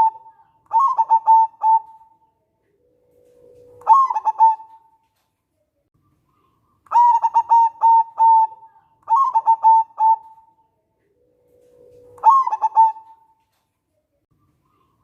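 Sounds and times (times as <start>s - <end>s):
dove cooing: 0.0s - 5.0s, 6.9s - 13.3s.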